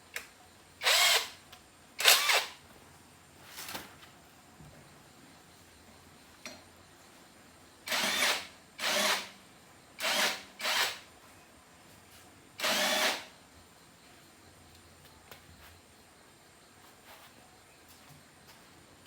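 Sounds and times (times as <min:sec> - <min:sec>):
electric power drill bursts: 0:00.8 - 0:01.4, 0:02.0 - 0:02.6, 0:07.8 - 0:09.4, 0:10.0 - 0:11.1, 0:12.6 - 0:13.3.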